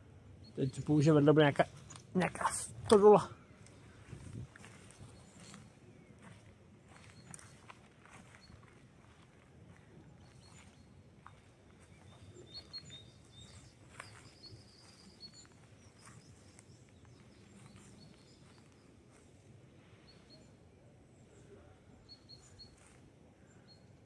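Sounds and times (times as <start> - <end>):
small birds chirping: 0.1 - 24.0.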